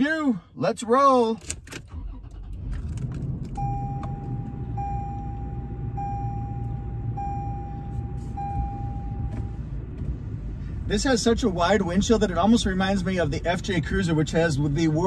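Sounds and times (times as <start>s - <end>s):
car engine idling: 1.9s - 15.0s
dashboard warning chime: 3.6s - 9.6s.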